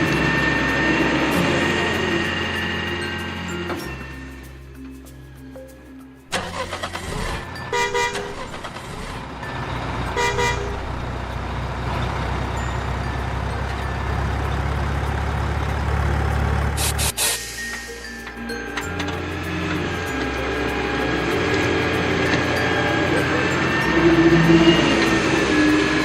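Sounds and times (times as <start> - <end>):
truck engine running: 0.0 - 26.0
truck horn toots: 6.3 - 11.6, 21.0 - 26.0.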